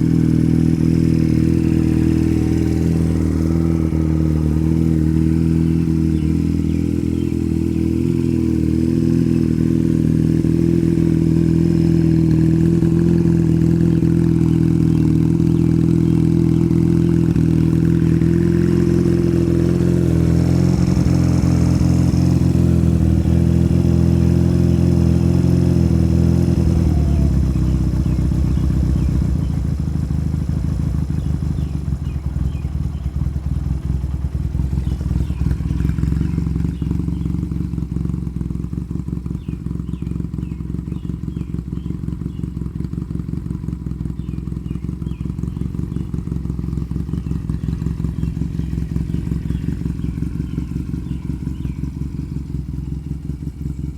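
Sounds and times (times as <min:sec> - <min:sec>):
motorcycle engine revving and idling: 0:00.0 - 0:53.9.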